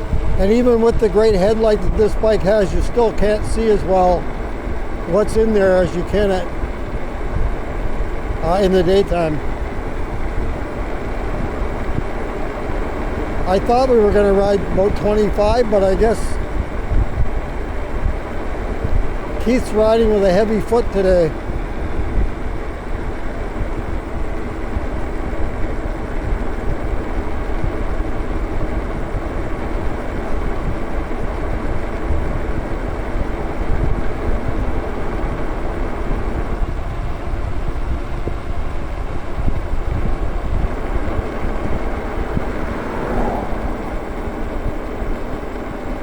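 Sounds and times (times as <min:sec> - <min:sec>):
electric motor hum: 0:00.0 - 0:46.0
wind rumble on microphone: 0:00.0 - 0:46.0
brief rising tone: 0:42.7 - 0:44.2.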